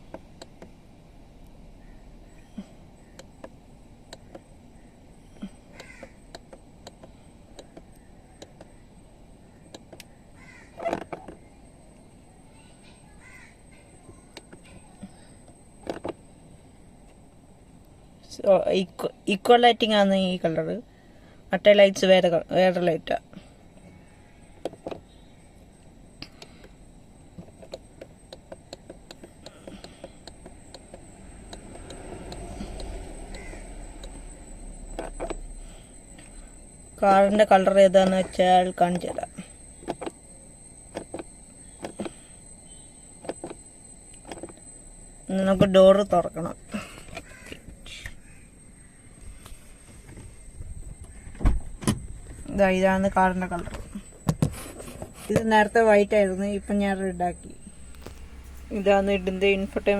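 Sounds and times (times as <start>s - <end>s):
faint low hum: 0.0s - 59.9s
crows cawing: 5.7s - 6.2s, 10.4s - 10.9s, 13.2s - 13.8s, 33.3s - 33.9s, 47.1s - 47.6s, 48.2s - 49.0s
faint irregular ticks: 23.8s - 45.3s, 57.5s - 59.9s.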